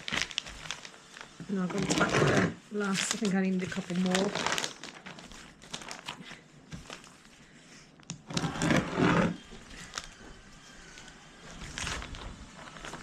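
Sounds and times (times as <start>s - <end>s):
plastic roofing sheets handled: 0.0s - 7.4s, 8.2s - 13.0s
loud grating scrape: 1.8s - 2.6s, 8.3s - 9.5s.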